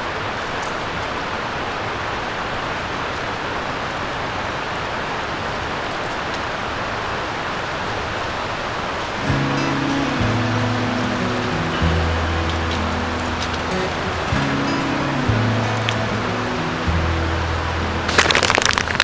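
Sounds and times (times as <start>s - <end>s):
steady hiss: 8.9s - 19.0s.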